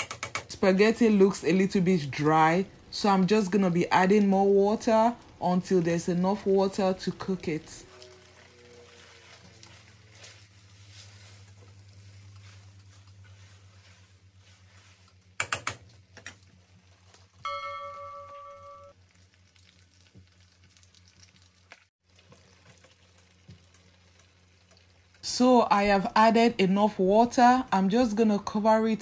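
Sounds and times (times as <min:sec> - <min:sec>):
bell-like chime: 0:17.4 - 0:18.9
food sizzling in a pan: 0:18.8 - 0:25.2.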